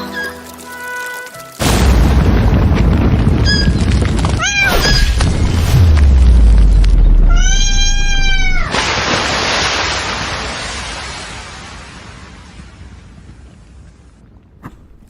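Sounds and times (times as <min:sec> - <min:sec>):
low rumble and hiss: 0:02.2 - 0:08.7
cat meowing: 0:04.4 - 0:05.2, 0:07.2 - 0:08.7.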